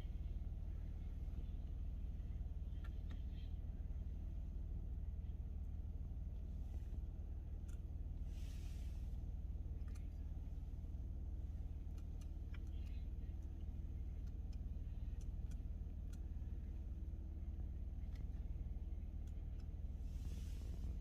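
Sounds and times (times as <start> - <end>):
car cabin hum: 0.0 - 21.0
faint light clicks: 2.4 - 3.6, 7.5 - 8.0, 9.7 - 10.6, 11.4 - 16.8, 18.0 - 21.0.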